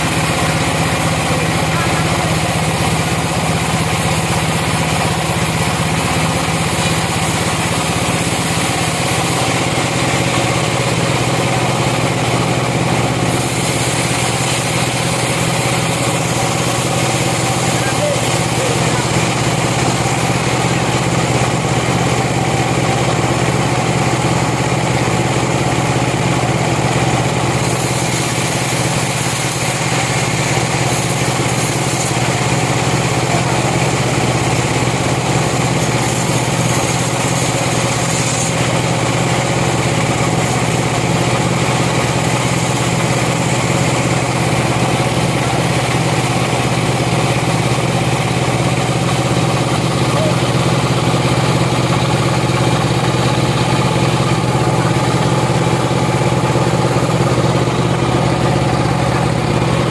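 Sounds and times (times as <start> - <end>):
sawmill engine running: 0.0 - 59.9.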